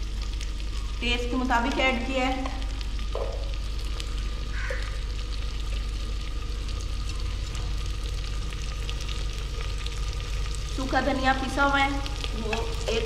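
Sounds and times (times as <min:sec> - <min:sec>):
food frying in oil: 0:00.0 - 0:13.0
low rumble: 0:00.0 - 0:13.0.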